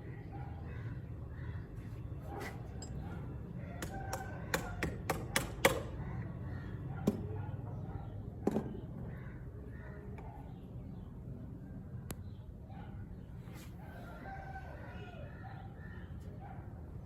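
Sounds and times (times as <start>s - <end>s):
sharp taps and knocks on pump: 3.8s - 5.9s.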